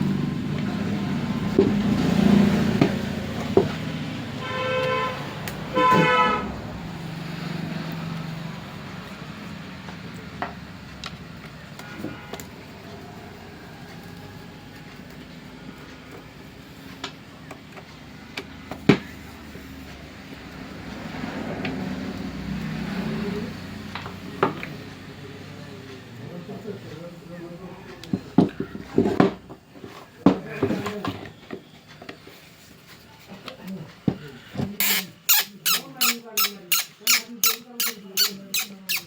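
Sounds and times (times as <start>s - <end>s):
traffic noise: 0.0s - 39.0s
vehicle horn honking: 4.3s - 6.8s, 11.8s - 12.8s.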